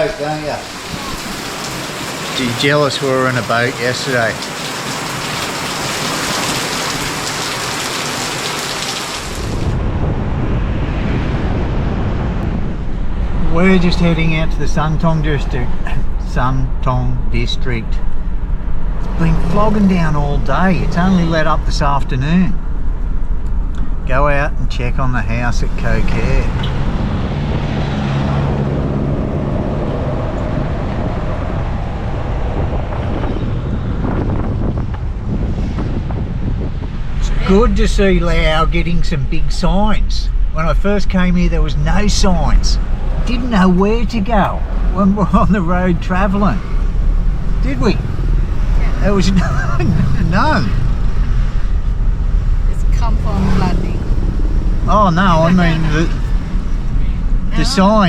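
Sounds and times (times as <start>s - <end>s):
heavy rain pouring: 0.0s - 10.6s, 18.9s - 22.5s, 41.6s - 58.0s
car engine and tyre noise: 0.0s - 58.0s
low steady rumble: 9.6s - 27.8s, 28.9s - 58.0s
low hum: 40.2s - 58.0s.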